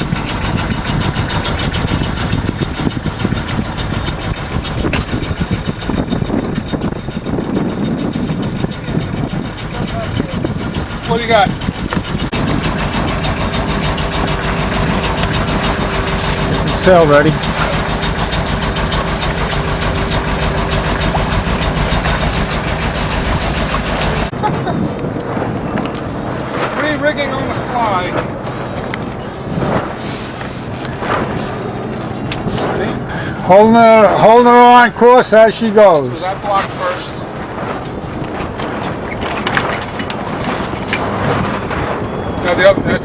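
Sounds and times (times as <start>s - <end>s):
boat engine running: 0.0s - 43.0s.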